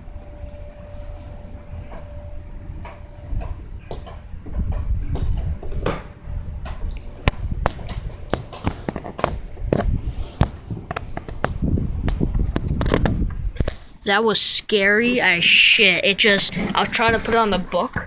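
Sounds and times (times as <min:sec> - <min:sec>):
steady low rumble: 0:00.0 - 0:13.7
phone knocking and scraping: 0:06.7 - 0:11.6, 0:16.4 - 0:18.0.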